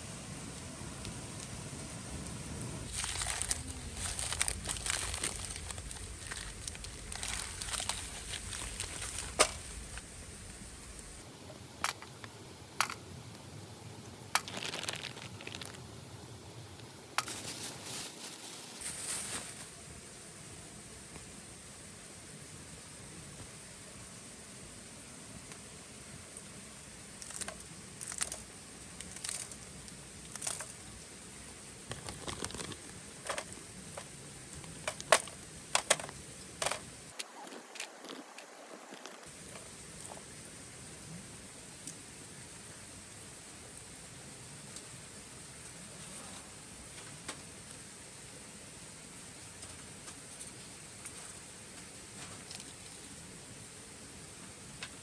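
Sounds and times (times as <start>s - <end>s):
background hiss: 0.0s - 55.0s
sharp clicks: 11.3s - 17.4s.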